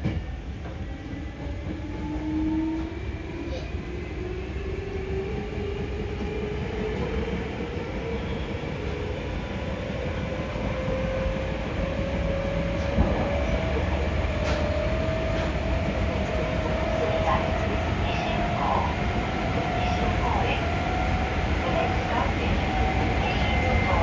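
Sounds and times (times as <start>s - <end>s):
wheel and rail rumble: 4.3s - 24.0s
train traction motors whining: 12.3s - 24.0s.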